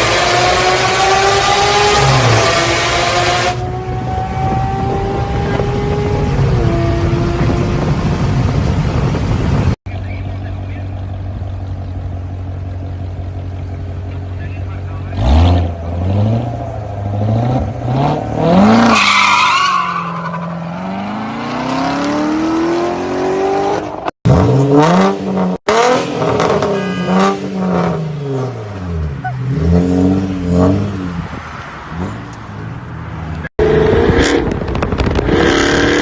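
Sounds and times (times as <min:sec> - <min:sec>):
sports car engine revving: 0:00.0 - 0:09.6, 0:15.0 - 0:18.9.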